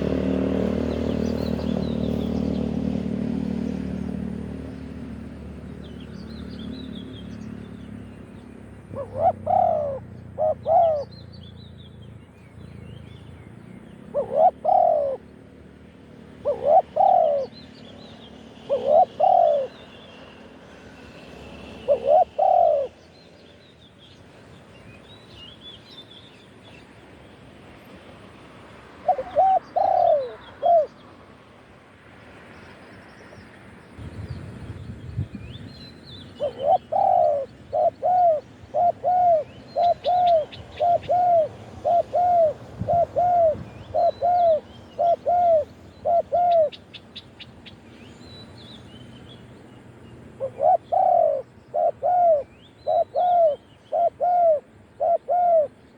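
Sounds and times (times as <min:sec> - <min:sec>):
small birds chirping: 0:00.0 - 0:27.5, 0:32.2 - 0:55.9
dove cooing: 0:08.9 - 0:11.2, 0:14.1 - 0:15.4, 0:16.3 - 0:17.7, 0:18.6 - 0:19.8, 0:21.8 - 0:23.0, 0:29.0 - 0:31.0, 0:36.4 - 0:46.9, 0:50.4 - 0:55.8.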